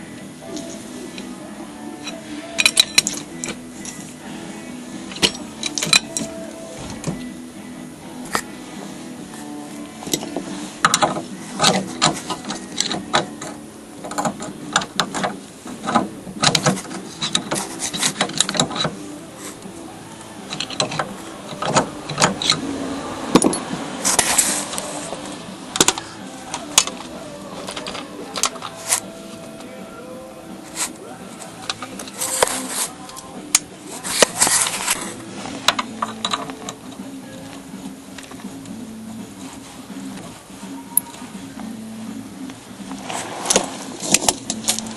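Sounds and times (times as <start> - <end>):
metal clicks of hand tools: 2.0 - 4.1, 5.1 - 7.3, 10.0 - 19.6, 20.2 - 22.7, 25.7 - 29.7, 35.7 - 37.1, 43.5 - 44.9.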